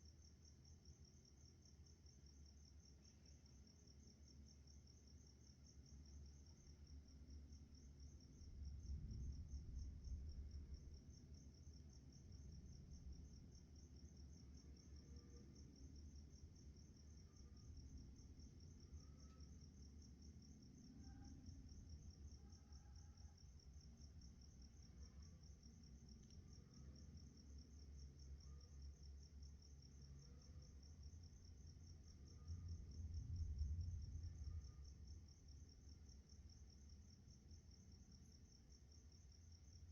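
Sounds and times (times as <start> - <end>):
crickets trilling: 0.2 - 39.9
low rumble: 32.0 - 35.6.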